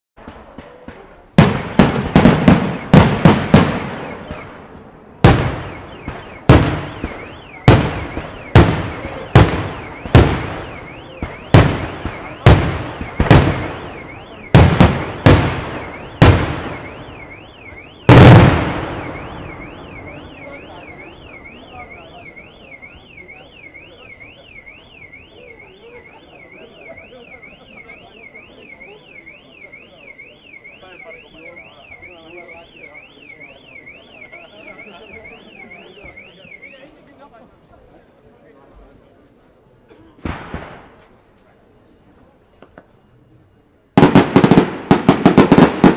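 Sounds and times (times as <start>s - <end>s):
fireworks bangs: 0.2s - 30.2s, 40.2s - 41.3s, 43.9s - 45.9s
car alarm siren warbling: 5.4s - 37.0s.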